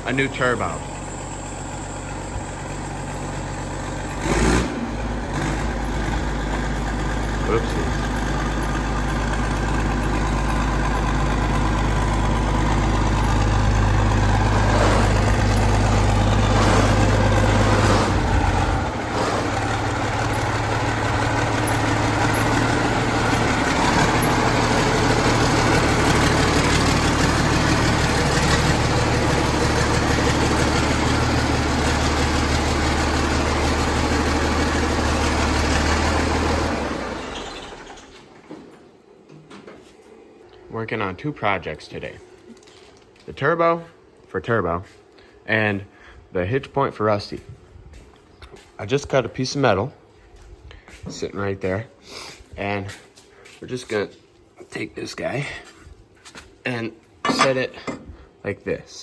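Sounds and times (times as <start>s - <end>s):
tractor engine idling: 0.0s - 38.3s, 57.2s - 58.4s.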